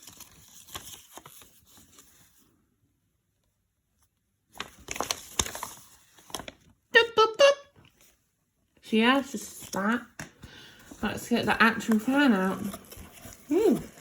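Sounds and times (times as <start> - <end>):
packaging rustling and crinkling: 0.0 - 2.4, 4.5 - 6.8, 10.7 - 14.0.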